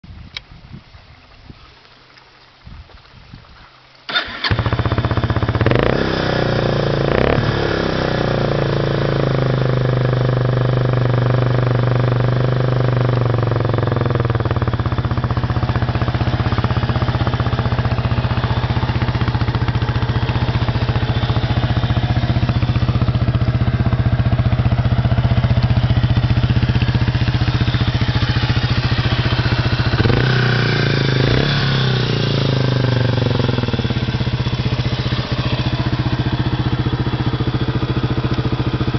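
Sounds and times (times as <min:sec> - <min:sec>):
motorcycle engine revving and idling: 0:04.1 - 0:38.9.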